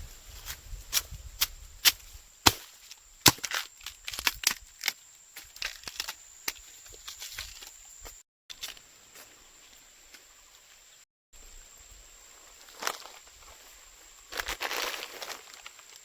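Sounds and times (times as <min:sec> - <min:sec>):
blade chopping bamboo: 0:00.9 - 0:06.6.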